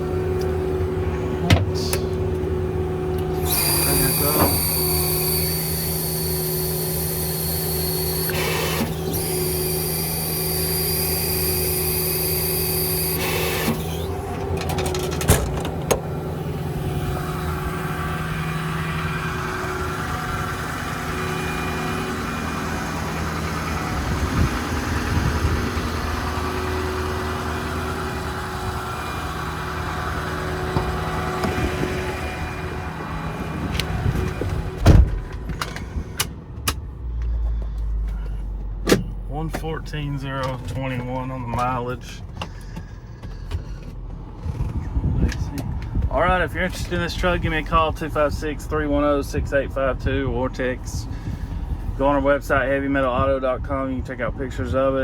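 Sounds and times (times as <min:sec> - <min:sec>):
air compressor hum: 0:00.0 - 0:36.6
diesel truck engine running: 0:00.0 - 0:55.0.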